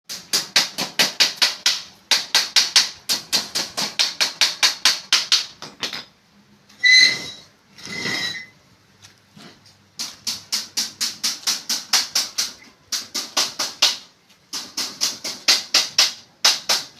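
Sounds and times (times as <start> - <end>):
rapid knocking: 10.2 - 16.9.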